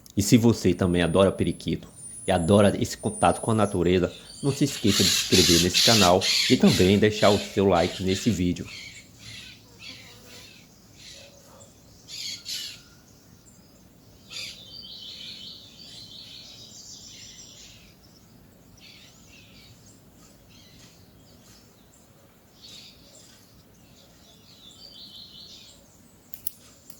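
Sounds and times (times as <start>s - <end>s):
buzzy bird call: 0.6s - 11.2s
parakeets screeching: 0.7s - 10.0s.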